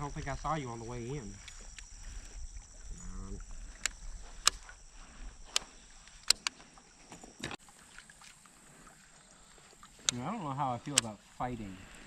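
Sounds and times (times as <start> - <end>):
low voice hum: 2.8 - 3.8.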